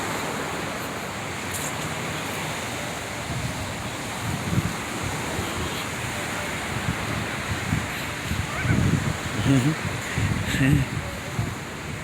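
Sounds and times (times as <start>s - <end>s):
ocean surf washing on beach: 0.0s - 12.0s
wind buffeting microphone: 2.5s - 12.0s.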